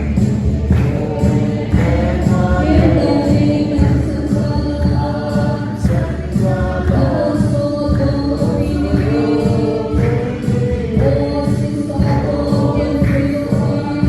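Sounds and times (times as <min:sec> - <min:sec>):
choir singing over a beat: 0:00.0 - 0:14.0.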